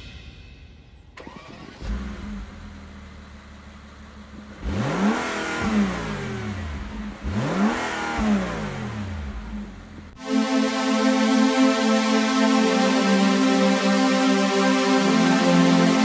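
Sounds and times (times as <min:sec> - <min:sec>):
car engine idling and revving: 0:01.0 - 0:16.0
electronic music: 0:10.2 - 0:16.0.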